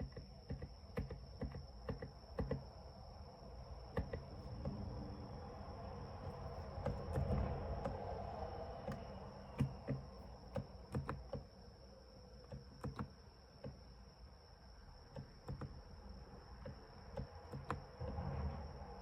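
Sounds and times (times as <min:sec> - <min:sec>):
soft keyboard keystrokes: 0:00.0 - 0:02.6, 0:03.9 - 0:04.8, 0:06.2 - 0:08.0, 0:08.8 - 0:11.5, 0:12.4 - 0:13.8, 0:15.1 - 0:15.8, 0:16.6 - 0:17.9.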